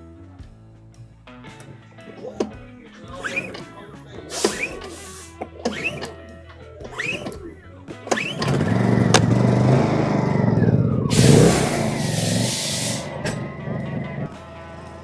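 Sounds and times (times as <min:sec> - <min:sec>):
background music: 0:00.0 - 0:15.0
generator engine running: 0:01.6 - 0:15.0
burst of hiss: 0:04.2 - 0:05.4, 0:11.1 - 0:13.4.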